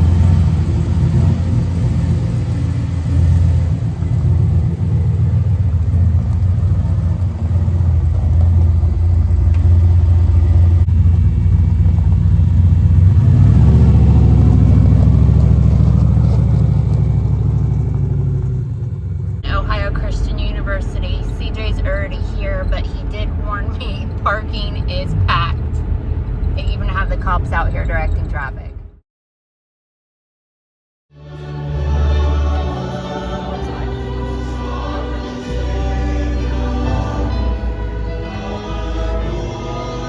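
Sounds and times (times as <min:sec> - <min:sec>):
car engine rumble: 0:00.0 - 0:29.0, 0:31.4 - 0:40.0
road noise inside vehicle: 0:00.0 - 0:29.0, 0:31.6 - 0:40.0.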